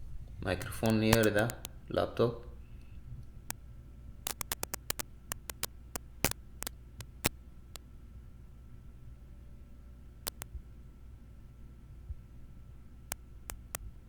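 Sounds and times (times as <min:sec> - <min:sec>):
low electrical hum: 0:00.0 - 0:14.0
microphone handling clicks and knocks: 0:00.6 - 0:01.7, 0:04.3 - 0:07.3.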